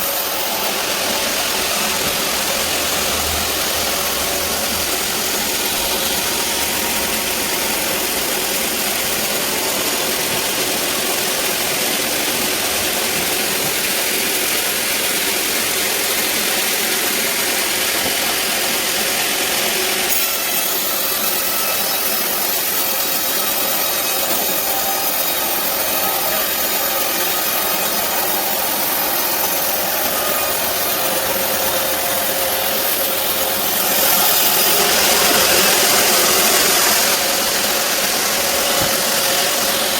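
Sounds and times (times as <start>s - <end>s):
band saw cutting a log: 0.0s - 39.9s.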